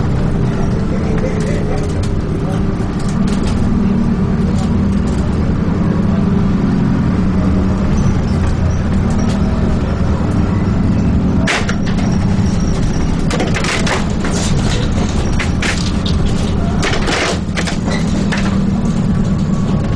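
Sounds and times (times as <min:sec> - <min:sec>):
bus engine droning: 0:00.0 - 0:19.9
clattering rattles: 0:11.2 - 0:19.9.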